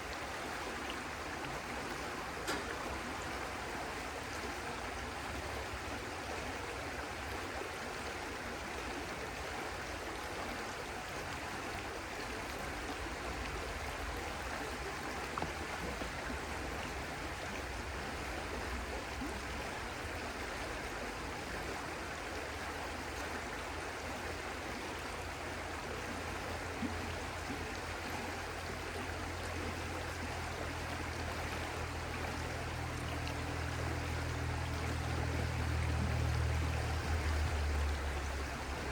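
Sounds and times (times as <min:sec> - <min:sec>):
stream flowing: 0:00.0 - 0:38.9
low hum: 0:30.5 - 0:38.9.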